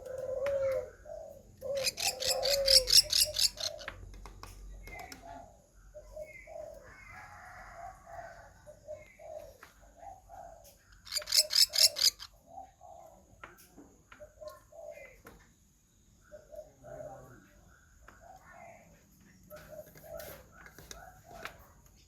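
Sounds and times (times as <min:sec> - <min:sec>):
high-pitched bird trill: 0:01.8 - 0:03.6, 0:11.1 - 0:12.2.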